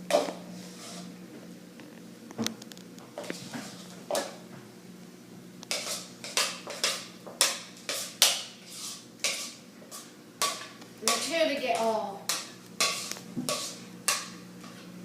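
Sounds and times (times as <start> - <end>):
spoon scraping mixing bowl: 0.1 - 1.1, 5.6 - 14.8.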